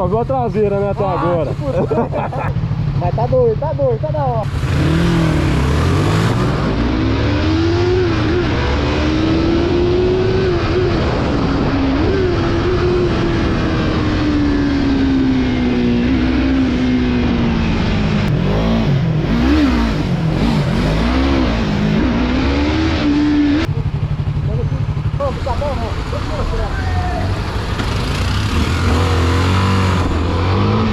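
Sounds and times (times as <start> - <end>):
motorcycle engine revving: 0.0 - 30.9
wind rush: 7.9 - 18.2.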